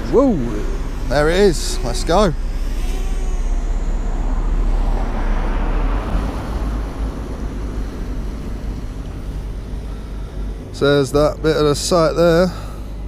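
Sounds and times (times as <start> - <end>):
wind rumble on microphone: 0.0 - 10.8
drone propellers whirring: 0.0 - 13.0.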